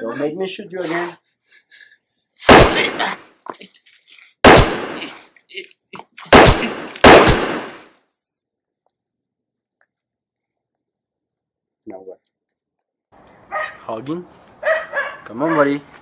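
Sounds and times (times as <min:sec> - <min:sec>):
handgun shots: 0:02.5 - 0:03.1, 0:04.4 - 0:05.1, 0:06.3 - 0:07.9.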